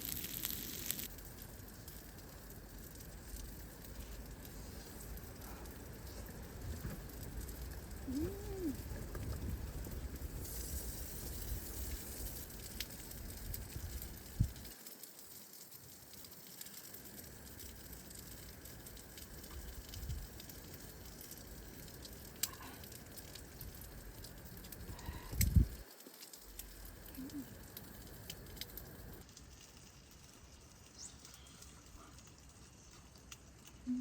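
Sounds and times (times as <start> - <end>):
sharp clicks and crackles: 0.0 - 34.0
wind buffeting microphone: 8.2 - 10.4, 25.3 - 25.8.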